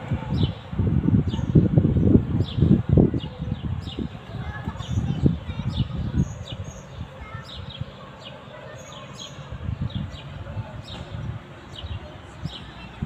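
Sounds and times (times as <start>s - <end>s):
small birds chirping: 0.2s - 13.0s.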